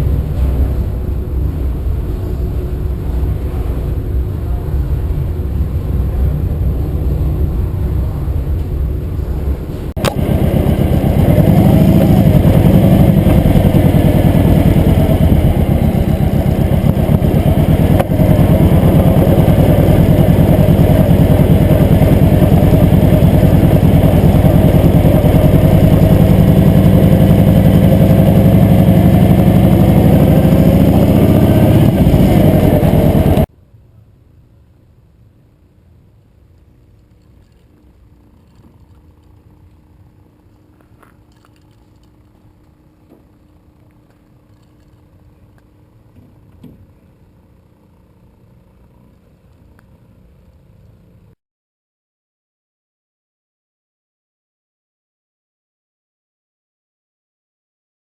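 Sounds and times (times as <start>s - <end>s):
motorcycle engine running: 0.0s - 33.5s, 37.4s - 51.2s.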